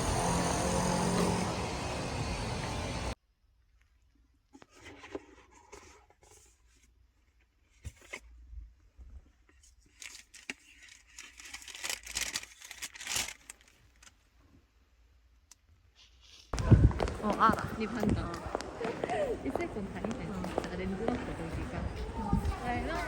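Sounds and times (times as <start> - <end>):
wrapping rustling and crinkling: 9.3 - 14.4
wrapping tearing: 9.9 - 14.2.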